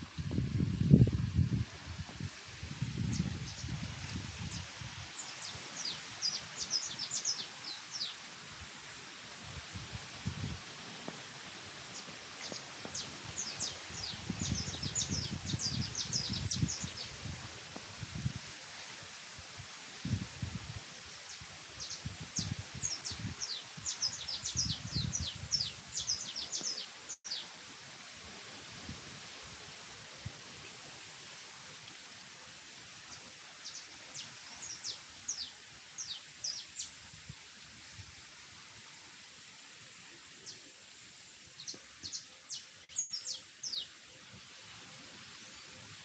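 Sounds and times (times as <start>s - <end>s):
steady hiss: 0.0s - 46.0s
small birds chirping: 4.5s - 8.2s, 11.9s - 17.1s, 21.3s - 27.4s, 33.6s - 36.9s, 41.6s - 43.9s.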